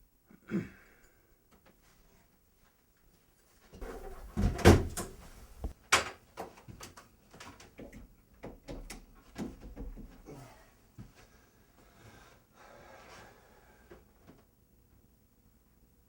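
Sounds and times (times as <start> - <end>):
door opening and shutting: 3.8 - 5.7
sharp knocks and bangs: 3.8 - 5.7.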